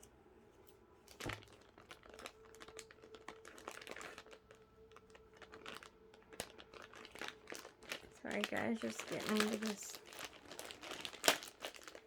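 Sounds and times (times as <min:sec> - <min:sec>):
packaging crinkling: 0:01.1 - 0:12.0.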